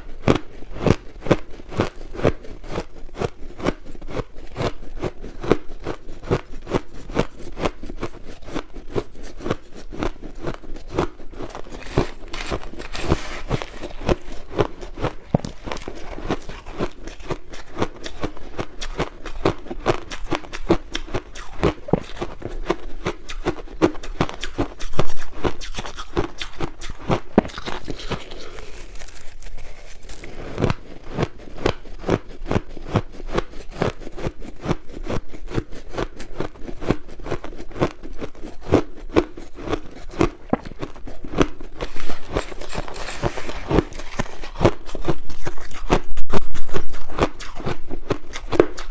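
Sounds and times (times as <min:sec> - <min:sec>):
crushed ice crunching: 0:11.4 - 0:18.3, 0:27.4 - 0:30.8.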